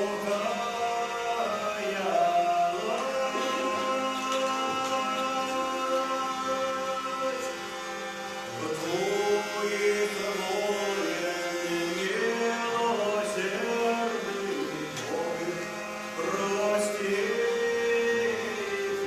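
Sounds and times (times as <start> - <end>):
group singing slow melody: 0.0 - 7.8.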